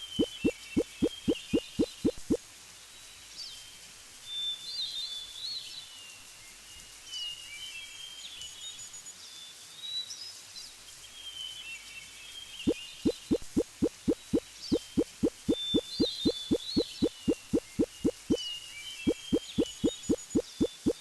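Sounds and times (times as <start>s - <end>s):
birds chirping and whistling: 14.2s - 18.4s.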